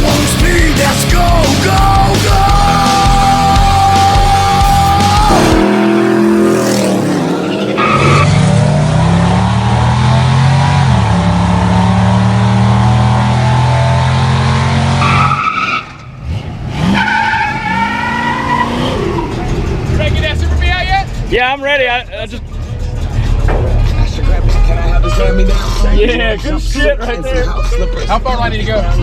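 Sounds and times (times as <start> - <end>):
tires squealing: 1.8 - 29.0
car engine revving hard: 2.7 - 20.2.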